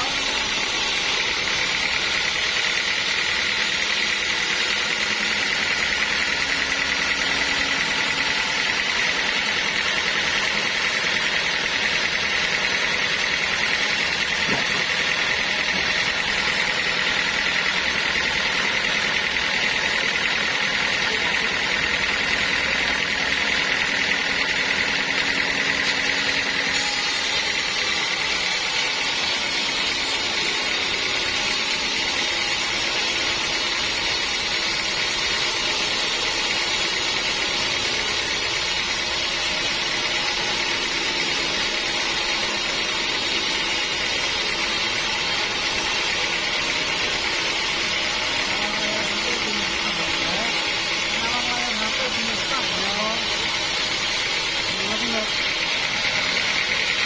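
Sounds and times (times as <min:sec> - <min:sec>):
high machine whine: 0:00.0 - 0:57.0
sawmill machinery drone: 0:00.0 - 0:57.0.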